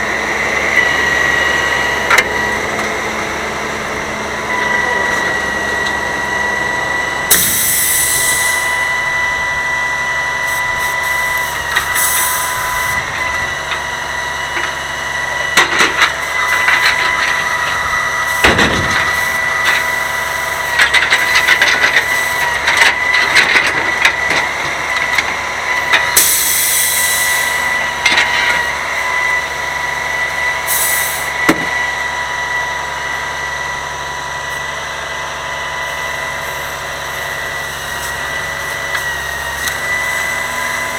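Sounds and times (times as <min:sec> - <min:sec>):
truck engine whine: 0:00.0 - 0:40.9
knocks and crunching: 0:15.4 - 0:26.2.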